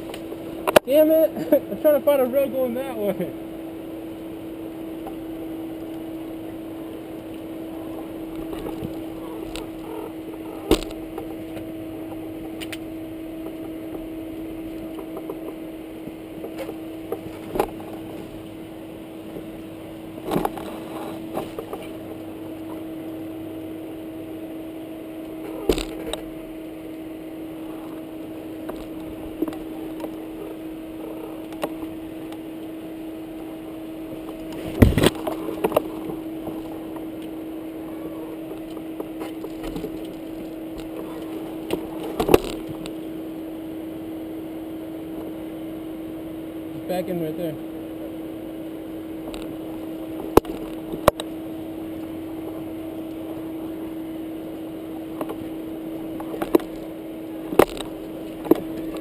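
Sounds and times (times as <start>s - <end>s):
dirt bike engine running: 49.0s - 59.0s.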